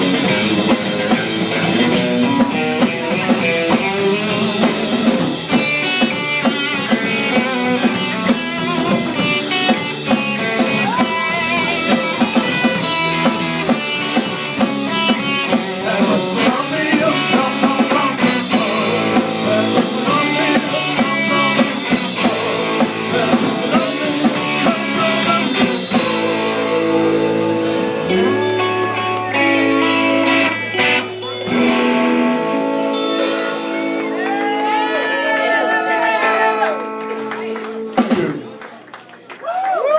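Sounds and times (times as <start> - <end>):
drum kit: 0.0 - 38.5
bass guitar: 0.0 - 38.6
electric guitars: 0.0 - 38.6.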